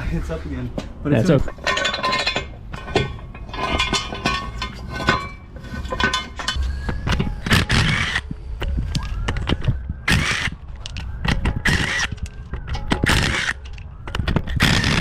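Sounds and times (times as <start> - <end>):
metal tools clinking and scraping: 0.7 - 8.2.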